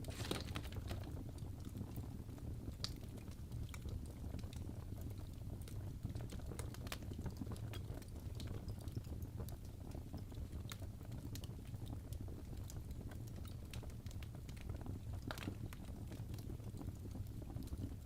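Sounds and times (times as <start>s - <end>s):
burning wood popping and snapping: 0.0s - 2.0s, 2.8s - 4.7s, 12.7s - 18.0s
fire rumbling: 0.0s - 11.0s.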